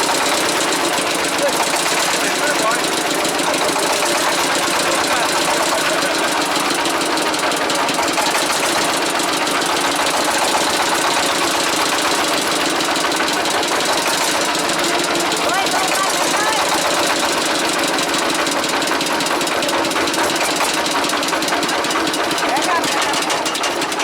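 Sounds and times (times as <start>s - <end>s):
small boat engine knocking: 0.0s - 24.0s.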